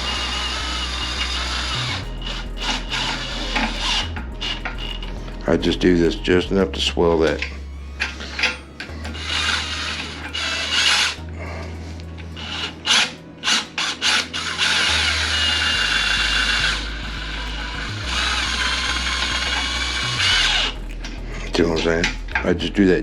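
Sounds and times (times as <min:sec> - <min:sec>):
power drill running: 0:00.0 - 0:05.1, 0:08.0 - 0:11.2, 0:12.4 - 0:20.8
drill clicks: 0:00.0 - 0:05.2, 0:12.4 - 0:21.2.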